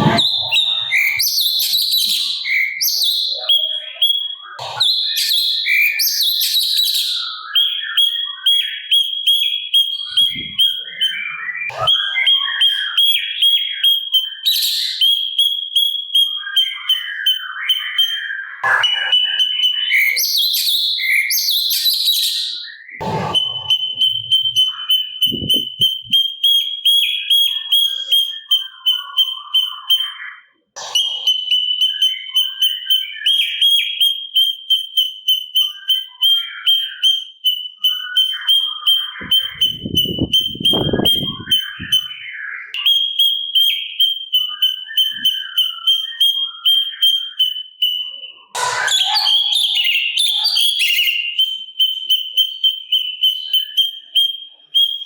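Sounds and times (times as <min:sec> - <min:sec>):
bird singing high repeated note: 0:00.0 - 0:03.9, 0:18.6 - 0:22.2, 0:23.0 - 0:26.2, 0:30.8 - 0:32.6, 0:38.8 - 0:42.2, 0:48.5 - 0:51.9
bird chattering phrases: 0:00.0 - 0:06.0, 0:10.1 - 0:12.8, 0:18.6 - 0:20.2, 0:23.0 - 0:26.2, 0:30.8 - 0:32.4, 0:48.5 - 0:51.2.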